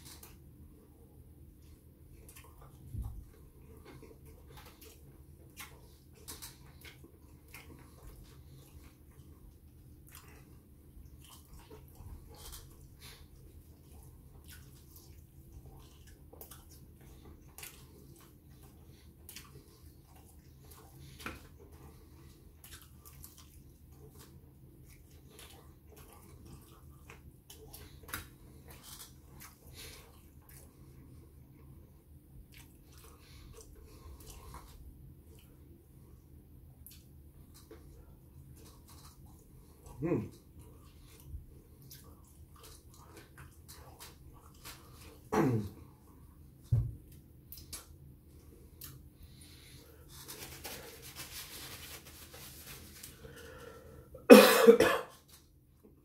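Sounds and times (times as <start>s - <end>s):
person chewing with mouth smacks: 1.4s - 53.4s.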